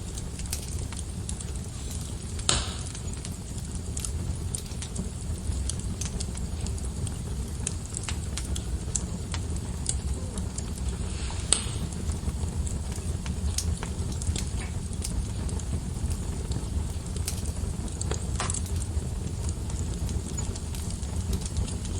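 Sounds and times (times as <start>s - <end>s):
burning wood crackling: 0.0s - 21.9s
fire flames rumbling: 0.0s - 21.9s.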